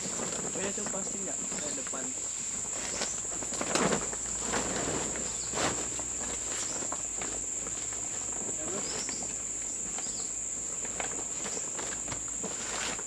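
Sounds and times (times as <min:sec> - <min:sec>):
rustles or knocks: 0:00.0 - 0:10.2
insects droning: 0:00.0 - 0:13.0.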